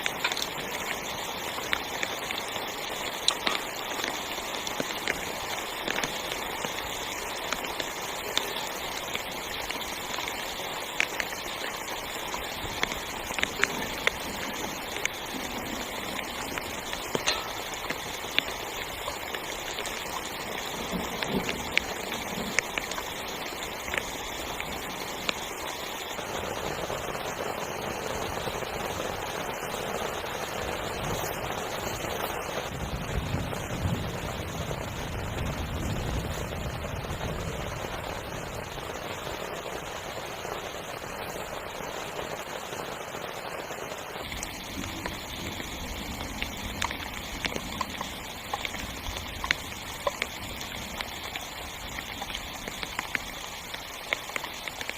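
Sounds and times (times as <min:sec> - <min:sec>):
heavy rain on tent fabric: 0:00.0 - 0:54.9
rain drops hitting: 0:00.0 - 0:54.9.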